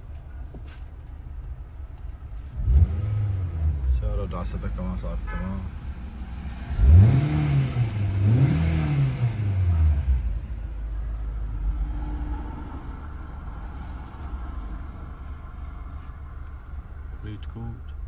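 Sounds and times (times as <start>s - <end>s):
car engine revving and idling: 1.4s - 18.0s.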